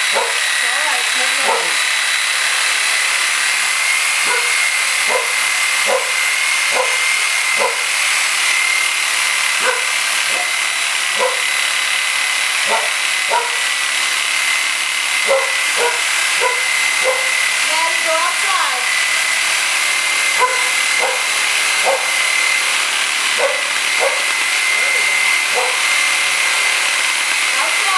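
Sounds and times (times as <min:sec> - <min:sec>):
reciprocating saw cutting: 0:00.0 - 0:27.9
dog barking: 0:00.1 - 0:00.5, 0:01.4 - 0:01.8, 0:04.2 - 0:07.0, 0:07.6 - 0:07.8, 0:09.6 - 0:10.5, 0:11.2 - 0:11.5, 0:12.7 - 0:13.6, 0:15.2 - 0:17.3, 0:20.4 - 0:22.2, 0:23.4 - 0:25.8.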